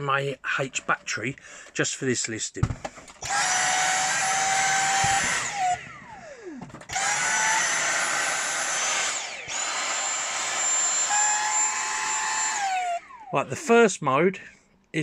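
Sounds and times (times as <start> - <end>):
vacuum cleaner motor whining: 3.2 - 13.7.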